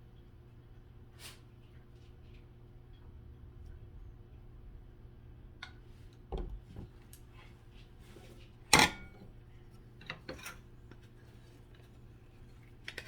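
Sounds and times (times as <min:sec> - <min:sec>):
dishes and cutlery clinking: 0:08.7 - 0:09.3.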